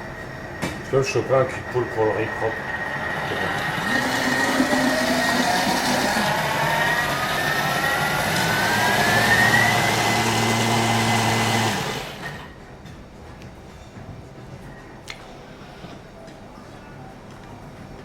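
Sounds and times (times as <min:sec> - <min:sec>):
blender whining: 0:01.5 - 0:12.5.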